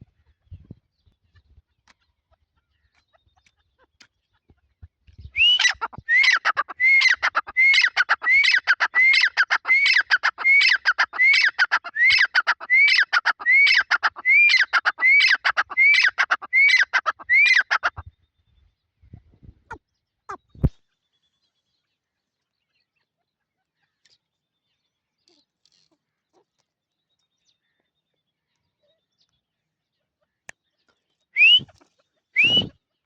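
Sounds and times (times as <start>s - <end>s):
partridge harsh calls: 5.4s - 18.0s.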